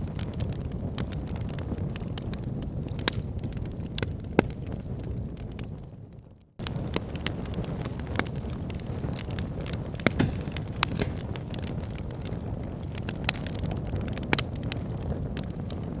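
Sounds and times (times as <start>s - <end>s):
wood crackling and popping: 6.6s - 16.0s.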